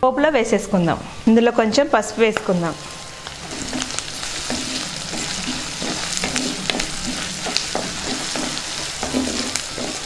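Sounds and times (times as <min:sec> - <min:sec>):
vegetables sizzling in hot oil: 0:00.6 - 0:10.0
wooden spatula scraping pot: 0:03.4 - 0:10.0.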